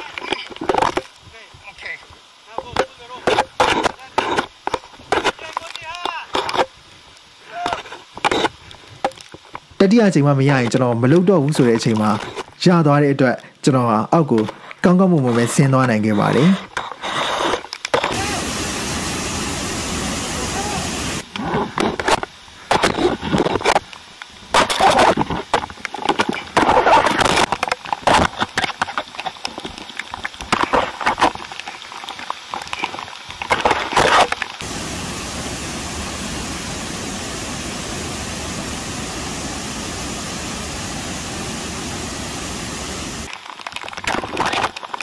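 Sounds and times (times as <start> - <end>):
waterfall rushing: 18.0 - 21.3, 34.0 - 43.3.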